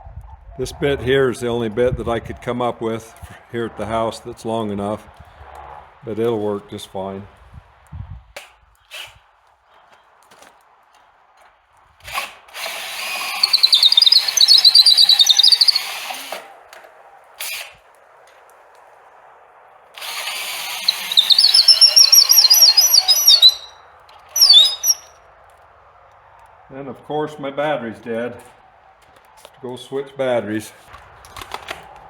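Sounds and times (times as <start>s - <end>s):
cordless drill whining: 12.1s - 16.4s, 20.0s - 23.7s, 24.4s - 25.1s.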